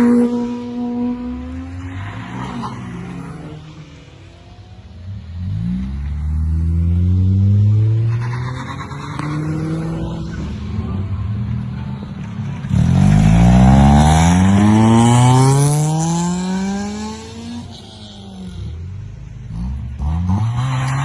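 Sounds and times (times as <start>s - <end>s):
car engine pulling away: 0.3s - 21.0s
engine accelerating: 3.0s - 18.8s.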